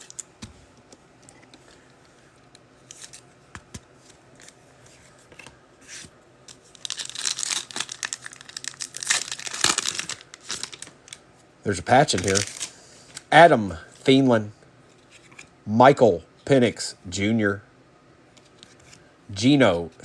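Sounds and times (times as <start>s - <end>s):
foil wrapper tearing and crinkling: 6.7s - 10.9s, 12.1s - 12.7s.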